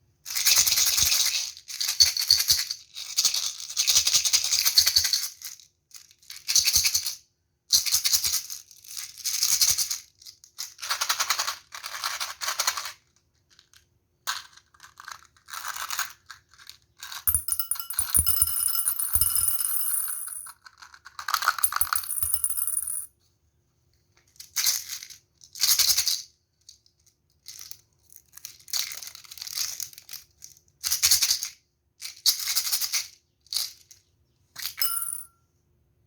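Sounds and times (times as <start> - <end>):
hard candies rattling: 21.6 - 23.0.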